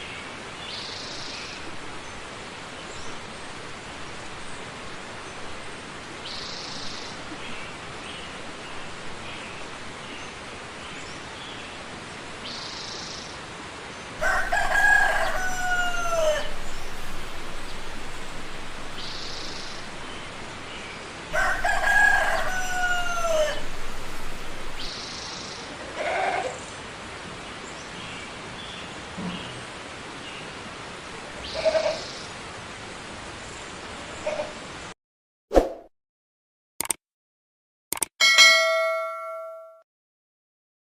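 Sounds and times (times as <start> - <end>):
rooster crowing: 14.2 - 24.9
faint high bird calls: 14.2 - 25.2.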